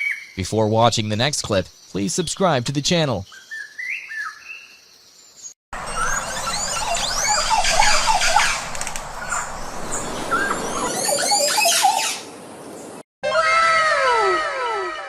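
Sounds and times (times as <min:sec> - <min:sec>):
birds chirping and whistling: 0:03.2 - 0:04.8, 0:05.4 - 0:13.0.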